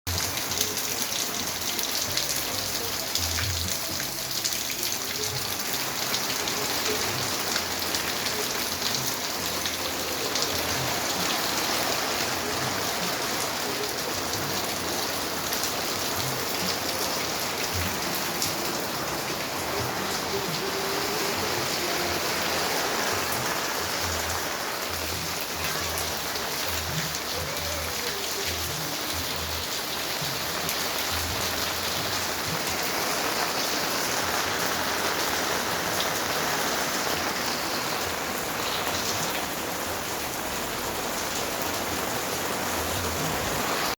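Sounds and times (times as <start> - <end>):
rain falling on pond water: 0.1 - 43.9.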